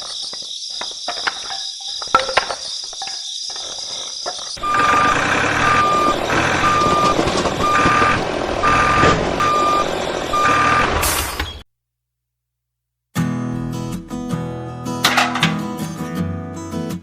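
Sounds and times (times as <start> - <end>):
truck engine running: 4.6 - 11.4
truck reversing alarm beeping: 4.6 - 11.6.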